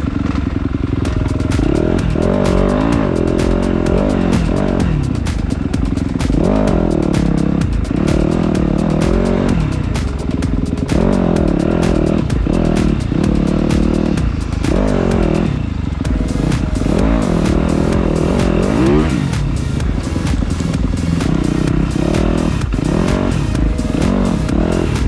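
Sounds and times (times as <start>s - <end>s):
dirt bike engine revving: 16.4s - 19.5s, 20.3s - 25.0s.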